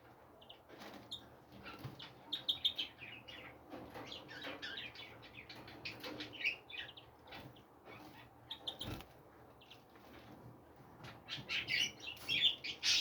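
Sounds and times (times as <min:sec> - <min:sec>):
small songbirds chirping: 0:00.0 - 0:13.0.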